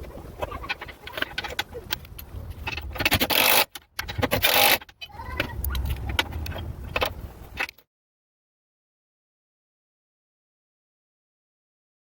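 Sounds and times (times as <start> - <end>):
clicks and scrapes of work: 0.4 - 7.8.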